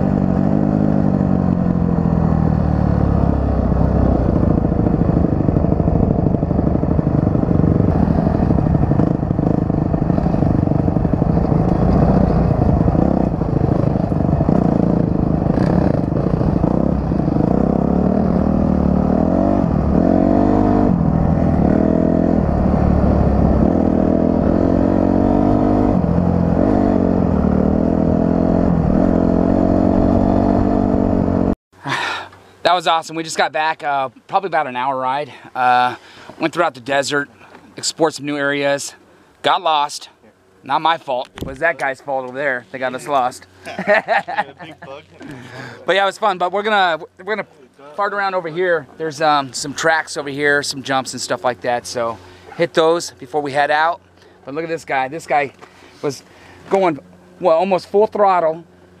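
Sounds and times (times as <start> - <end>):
steady rushing noise: 0.0 - 27.8
dirt bike engine revving: 0.0 - 31.6.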